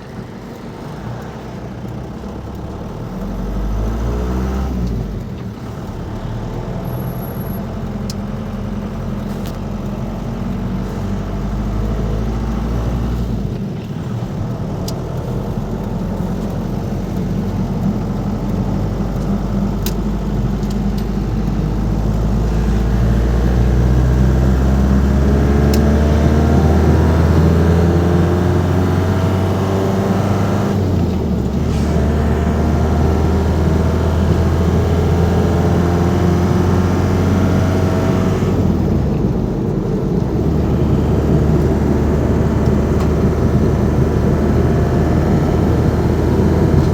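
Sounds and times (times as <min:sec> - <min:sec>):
diesel van engine accelerating: 0:00.0 - 0:46.9.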